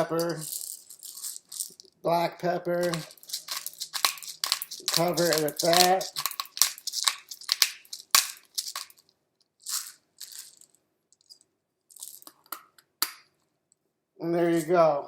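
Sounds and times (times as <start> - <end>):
pepper shaker taps and rattles: 0.0 - 1.9, 2.8 - 13.3
shaker click: 2.8 - 9.0.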